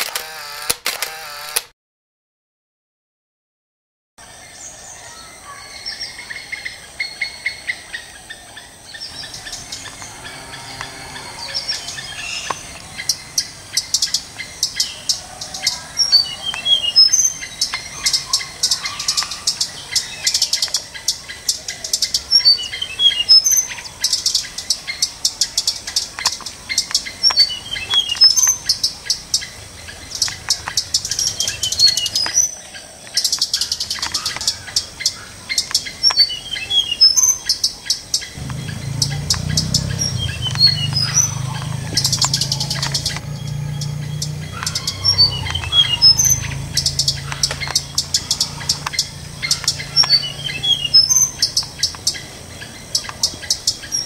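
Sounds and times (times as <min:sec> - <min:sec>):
bird chirps and trills: 0:04.3 - 0:54.0
insect clicking: 0:25.9 - 0:28.1, 0:39.3 - 0:50.2
low hum: 0:38.4 - 0:51.6.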